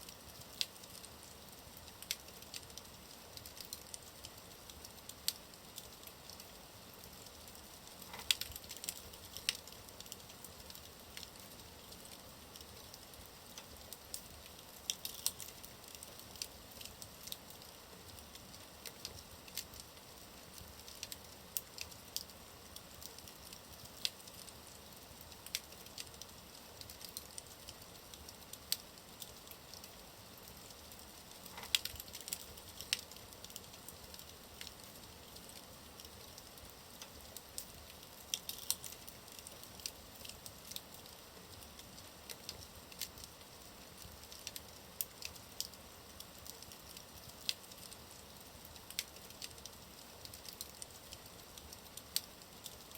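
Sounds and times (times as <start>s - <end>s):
faint steady hiss: 0.0s - 52.9s
wood fire crackling and popping: 0.0s - 52.9s.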